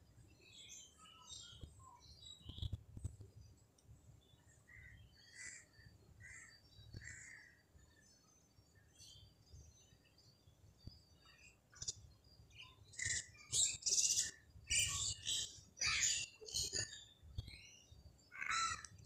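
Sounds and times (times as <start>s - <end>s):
birds chirping: 0.3s - 3.2s.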